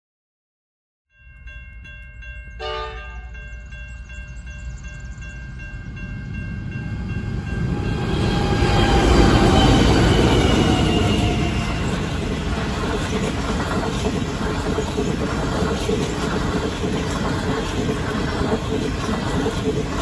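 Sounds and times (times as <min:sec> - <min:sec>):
locomotive horn blast: 0:02.6 - 0:03.3
train carriages rolling on rails: 0:03.4 - 0:20.0
locomotive engine and wheel rumble: 0:03.9 - 0:20.0.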